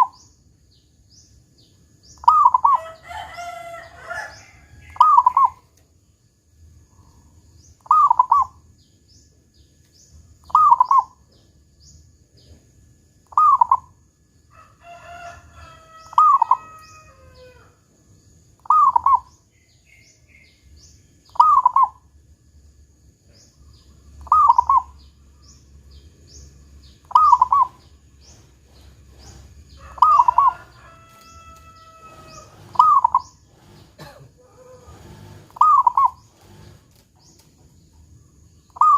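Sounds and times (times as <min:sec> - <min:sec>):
dove cooing: 0:02.2 - 0:05.6, 0:07.8 - 0:08.6, 0:10.5 - 0:11.2, 0:13.3 - 0:13.9, 0:16.0 - 0:17.7, 0:18.6 - 0:19.3, 0:21.3 - 0:22.0, 0:24.2 - 0:25.1, 0:27.0 - 0:30.8, 0:31.4 - 0:36.8
rooster crowing: 0:02.5 - 0:05.4, 0:14.5 - 0:17.9, 0:29.5 - 0:33.3, 0:34.4 - 0:35.8.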